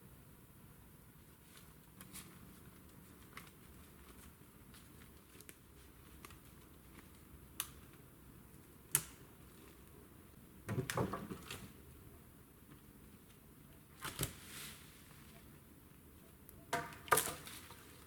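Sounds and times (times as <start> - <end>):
faint steady background noise: 0.0 - 18.0
small clicks and snaps: 5.0 - 8.0, 8.9 - 9.2.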